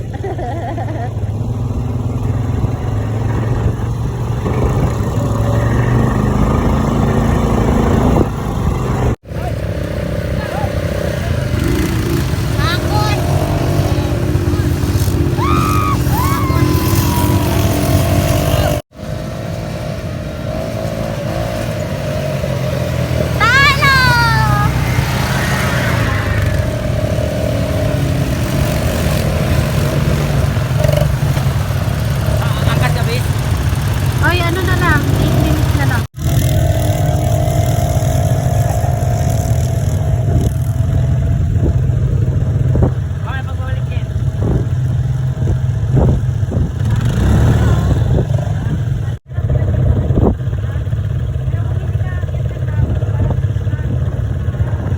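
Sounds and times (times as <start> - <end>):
quad bike engine running: 0.0 - 54.9
high-pitched voice calling: 12.6 - 18.8, 23.2 - 26.6.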